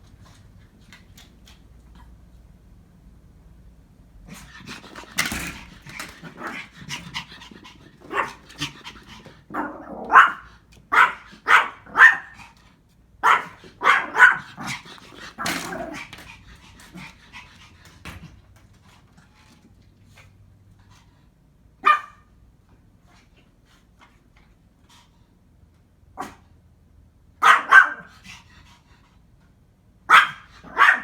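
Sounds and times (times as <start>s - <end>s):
puppy barking: 8.0s - 8.4s, 9.6s - 12.4s, 13.2s - 14.7s, 21.8s - 22.2s, 27.4s - 28.1s, 30.1s - 31.0s.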